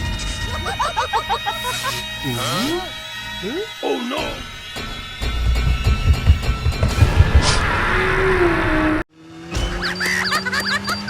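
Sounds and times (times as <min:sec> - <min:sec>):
low rumble: 0:04.3 - 0:09.1
squeaky rising chirps: 0:09.6 - 0:11.0.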